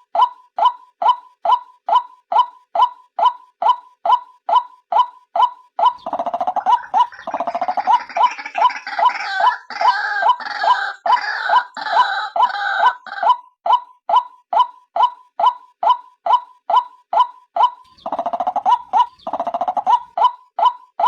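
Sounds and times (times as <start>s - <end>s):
harsh pulsed bird chattering: 5.8s - 13.4s, 17.2s - 20.7s
bird clipped repeated note: 17.8s - 20.8s.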